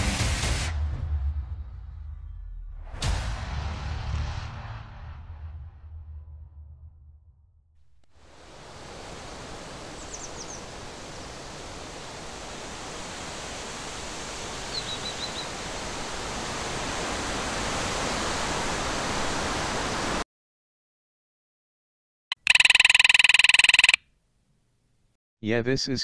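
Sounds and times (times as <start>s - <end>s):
steady rushing noise: 8.2s - 20.2s.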